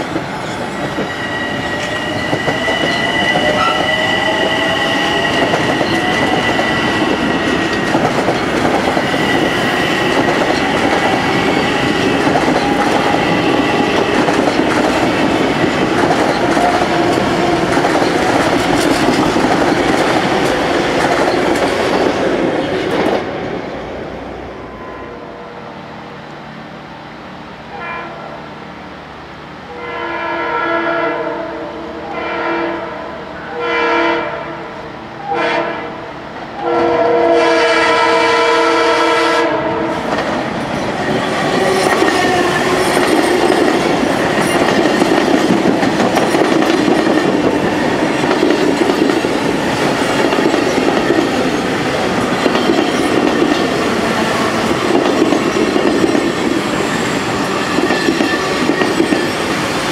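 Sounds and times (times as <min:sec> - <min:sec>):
train wheels clattering: 0:00.0 - 0:23.5, 0:39.9 - 0:59.9
train horn blasts: 0:01.6 - 0:07.1, 0:24.7 - 0:25.8, 0:27.7 - 0:28.6, 0:29.7 - 0:40.1.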